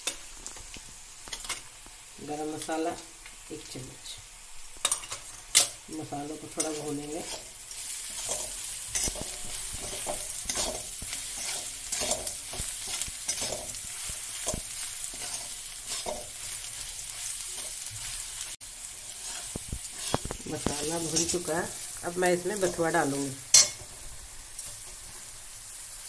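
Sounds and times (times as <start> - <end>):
onions sizzling in oil: 0.0 - 26.0
metal spatula scraping: 4.8 - 25.3.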